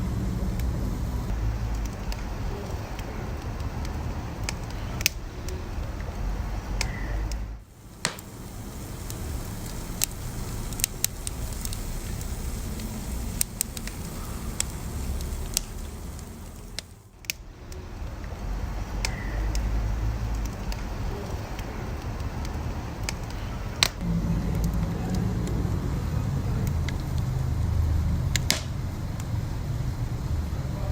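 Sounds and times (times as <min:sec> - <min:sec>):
burning wood crackling and popping: 0:00.0 - 0:30.6
low rumble of flames: 0:00.0 - 0:30.9.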